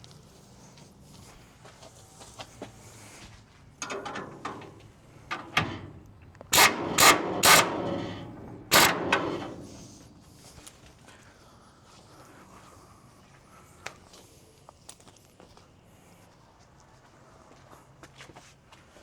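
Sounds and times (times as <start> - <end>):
loud bangs on sheet metal: 6.6 - 10.1.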